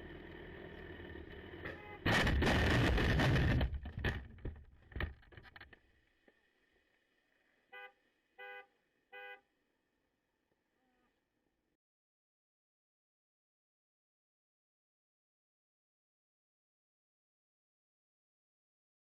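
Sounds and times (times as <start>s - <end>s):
car horn toots: 1.7s - 2.1s, 7.7s - 9.4s
loud crash: 2.0s - 4.2s
scattered clattering: 2.0s - 5.8s.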